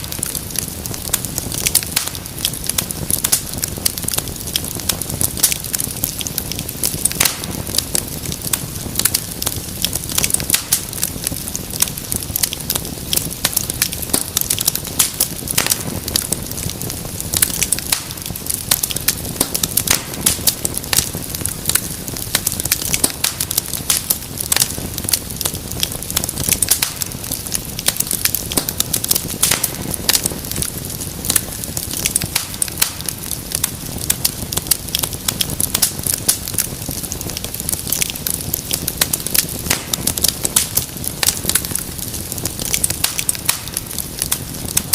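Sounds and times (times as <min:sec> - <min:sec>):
low rumble of flames: 0:00.0 - 0:44.9
wood fire crackling and popping: 0:00.0 - 0:44.9.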